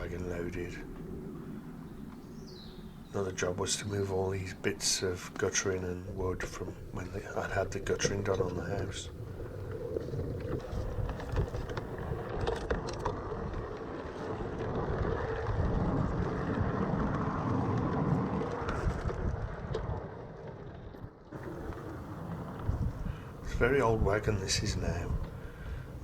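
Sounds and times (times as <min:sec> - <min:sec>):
faint steady hum: 0:00.0 - 0:14.1, 0:21.4 - 0:26.0
miniature train rumbling: 0:21.4 - 0:26.0.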